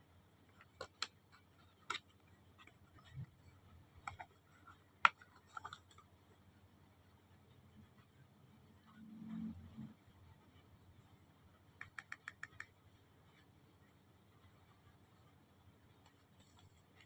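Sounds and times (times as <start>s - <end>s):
packaging clicks and taps: 0.5s - 1.2s.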